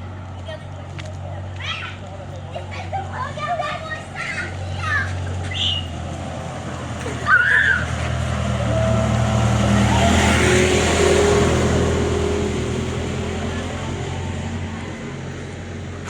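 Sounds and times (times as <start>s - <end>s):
vehicle passing by: 0.0s - 16.0s
people calling out: 3.1s - 6.0s, 6.7s - 10.6s.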